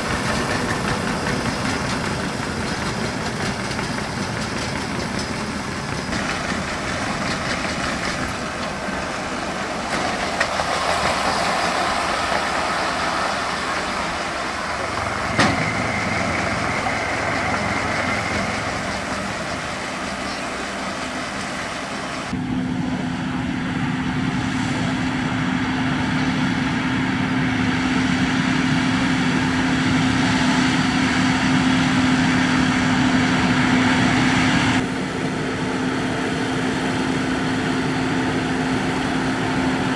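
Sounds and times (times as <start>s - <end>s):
tractor engines running: 0.0s - 39.9s
engine humming on a held tone: 13.6s - 39.9s.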